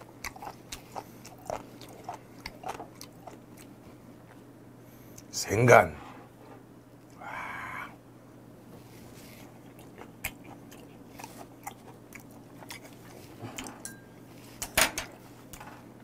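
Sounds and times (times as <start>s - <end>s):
chewing with wet mouth clicks: 0.0s - 4.4s, 9.5s - 13.7s.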